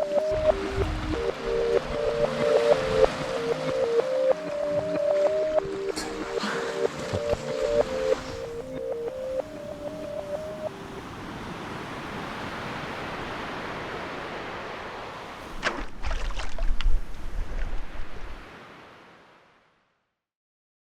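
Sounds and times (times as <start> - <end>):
wind buffeting microphone: 0.0 - 6.4
sea waves washing in: 0.0 - 19.7.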